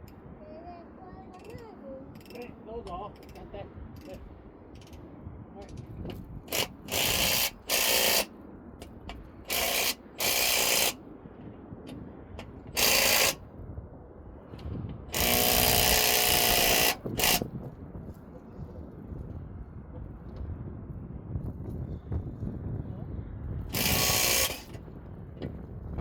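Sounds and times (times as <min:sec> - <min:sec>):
power tool running in bursts: 0:06.5 - 0:08.3, 0:09.5 - 0:11.0, 0:12.8 - 0:13.4, 0:15.1 - 0:17.5, 0:23.7 - 0:24.8.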